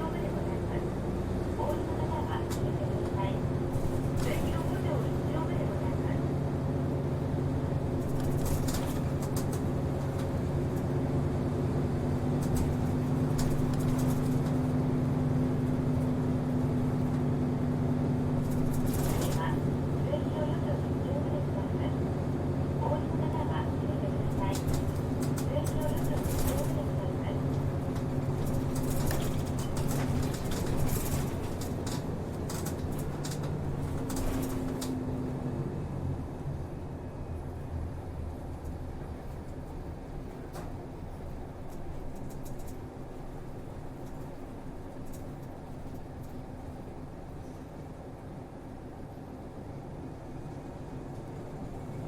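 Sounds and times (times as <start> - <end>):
bus diesel engine hum: 0.0 - 52.0
short sharp ticks and rattles: 27.5 - 35.0.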